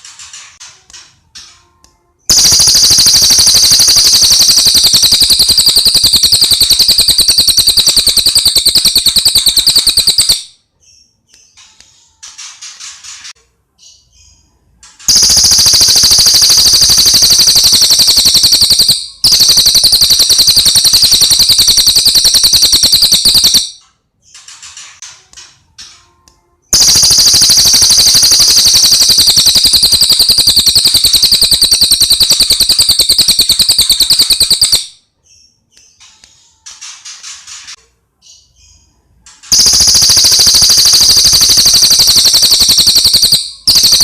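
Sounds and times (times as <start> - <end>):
bird singing high-pitched trills: 2.3 - 11.1, 15.1 - 23.8, 26.7 - 34.9, 39.5 - 44.0.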